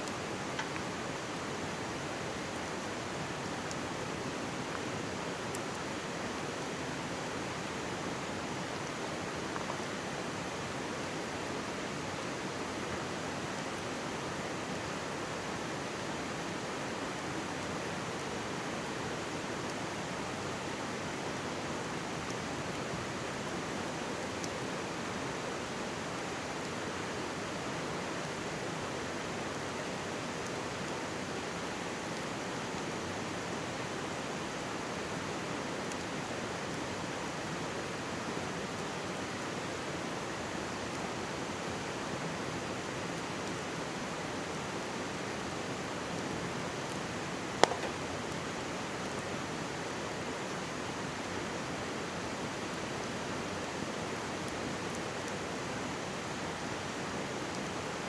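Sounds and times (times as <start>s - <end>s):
mountain stream rushing: 0.0s - 58.0s
campfire crackling: 47.5s - 48.9s
sharp pop from fire: 47.6s - 48.0s.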